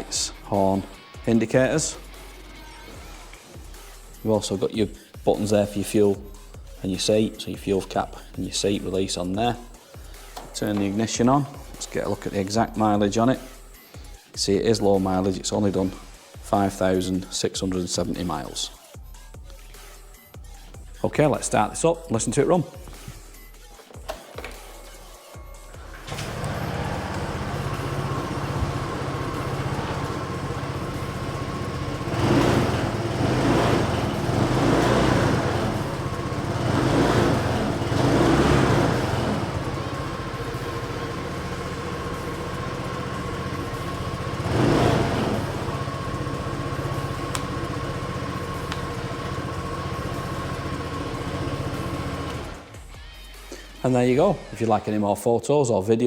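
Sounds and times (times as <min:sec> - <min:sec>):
scooter engine starting and idling: 0:02.8 - 0:13.4, 0:25.6 - 0:52.9
scooter engine revving: 0:25.8 - 0:52.8.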